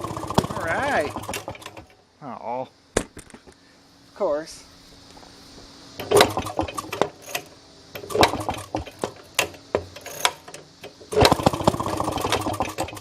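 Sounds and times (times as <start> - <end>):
small engine cranking and firing: 0.0 - 1.9, 6.0 - 13.0.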